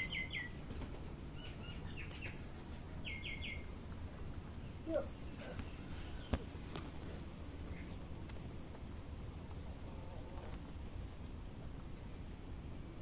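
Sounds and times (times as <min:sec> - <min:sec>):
faint low outdoor rumble: 0:00.0 - 0:13.0
insect calling in high pulses: 0:01.0 - 0:04.2, 0:04.8 - 0:05.4, 0:07.2 - 0:08.8, 0:09.5 - 0:10.1, 0:10.8 - 0:11.3, 0:11.9 - 0:12.4.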